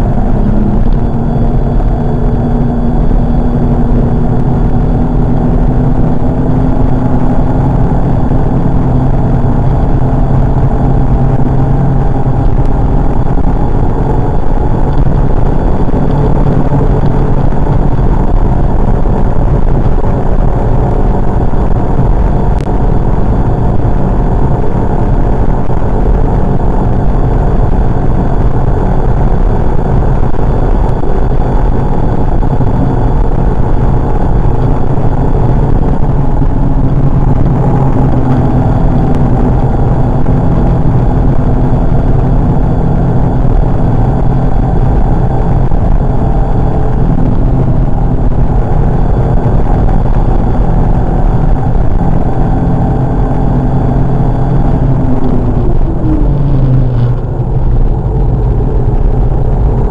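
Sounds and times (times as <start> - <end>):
car engine pulling at high revs: 0.0 - 59.9
road and wind noise: 0.0 - 59.9.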